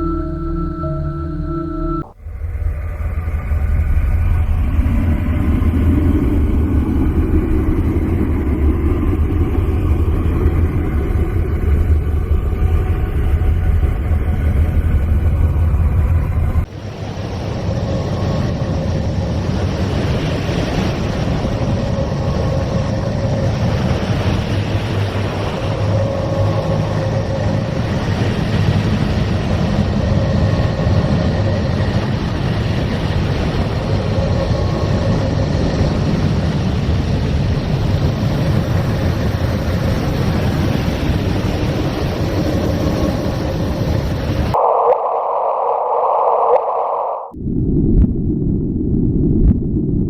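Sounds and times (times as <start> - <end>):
faint steady tone: 0.0 - 5.2
hissing drone: 0.0 - 14.7, 16.6 - 47.4
deep rumbling drone: 0.0 - 50.0.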